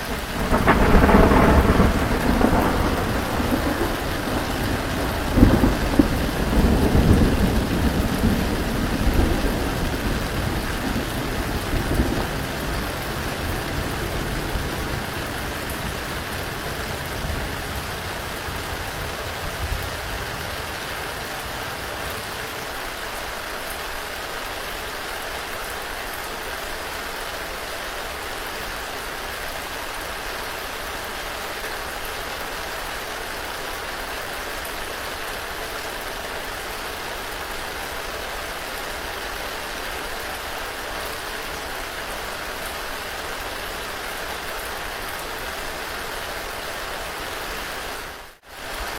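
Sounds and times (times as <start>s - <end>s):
thunder rumbling: 0.0s - 22.8s
steady rain falling: 0.0s - 48.9s.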